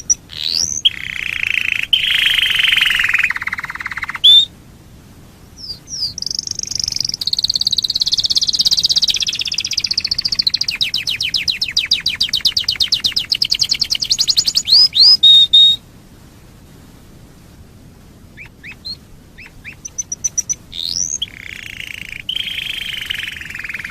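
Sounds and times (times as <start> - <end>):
canary singing a trill: 0.0 - 4.5, 5.6 - 15.8, 18.4 - 23.9.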